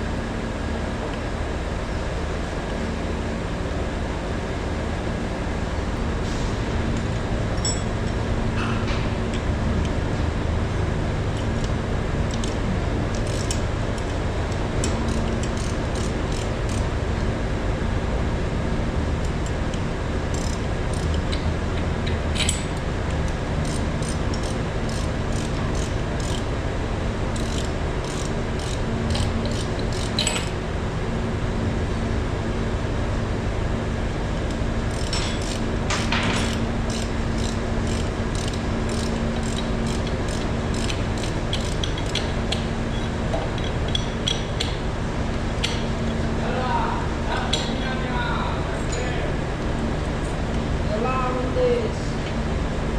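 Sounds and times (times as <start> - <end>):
low machine hum: 0.0 - 52.9
metal tools clicking and clinking: 7.6 - 7.9, 27.4 - 30.6, 34.9 - 44.8.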